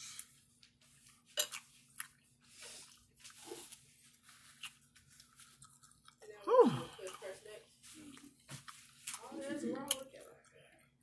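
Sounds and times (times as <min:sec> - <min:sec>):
person chewing food: 0:00.0 - 0:07.3.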